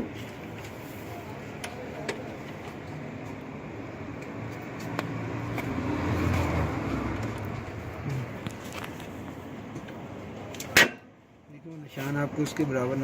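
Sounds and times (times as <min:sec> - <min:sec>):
steady traffic noise: 0:00.0 - 0:13.0
vehicle engine passing by: 0:04.6 - 0:08.7.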